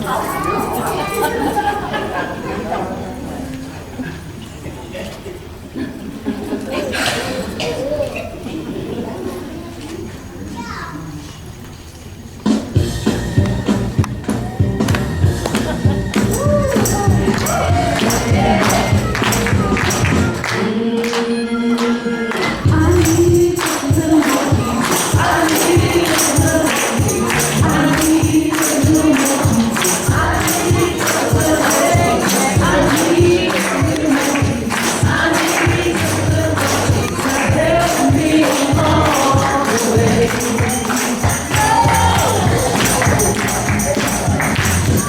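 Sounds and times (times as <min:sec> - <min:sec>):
tambourine shaken and struck: 0:00.0 - 0:02.0, 0:12.7 - 0:20.5, 0:22.5 - 0:45.0
choir singing gospel music: 0:12.8 - 0:45.0.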